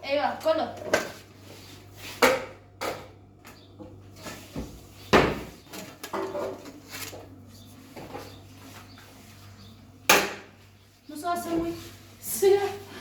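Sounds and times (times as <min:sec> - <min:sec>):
cupboard doors and cookware clattering: 0:04.2 - 0:07.2.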